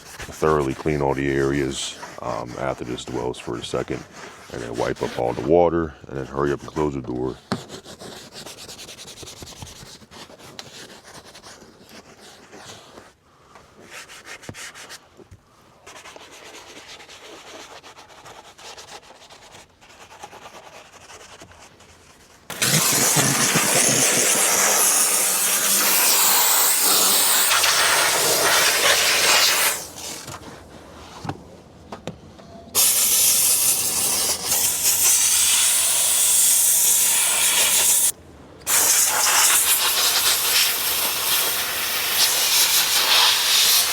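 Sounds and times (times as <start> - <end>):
brush scrubbing: 0.0 - 5.5, 15.9 - 30.6
steam cleaner hissing: 22.5 - 30.3, 32.8 - 38.1, 38.7 - 43.9.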